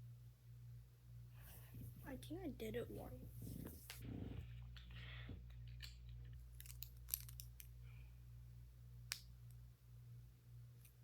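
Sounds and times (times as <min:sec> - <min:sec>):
low steady hum: 0:00.0 - 0:11.0
plastic pieces clicking together: 0:05.6 - 0:07.7.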